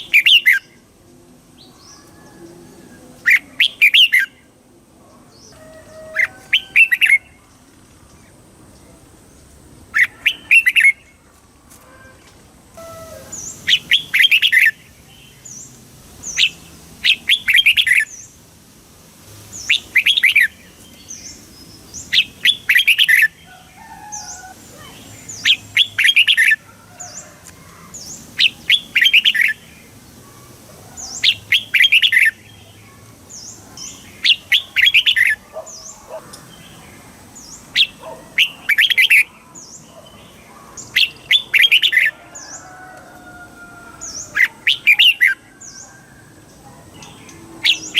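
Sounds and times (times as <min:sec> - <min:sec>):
bulbul singing chirpy phrases: 0:03.2 - 0:04.6.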